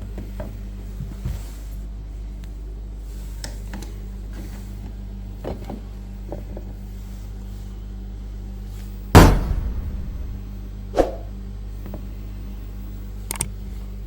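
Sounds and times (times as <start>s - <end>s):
steady low hum: 8.2s - 14.0s
loud rattling knock: 9.2s - 10.4s.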